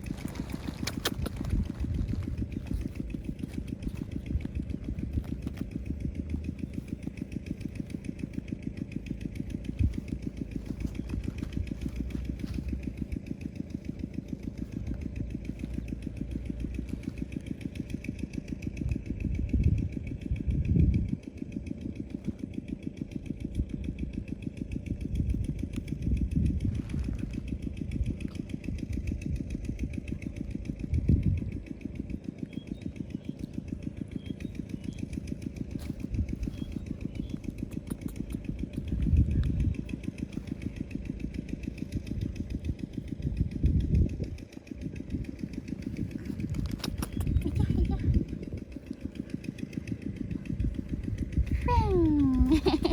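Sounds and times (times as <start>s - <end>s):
small engine idling: 0.0s - 52.9s.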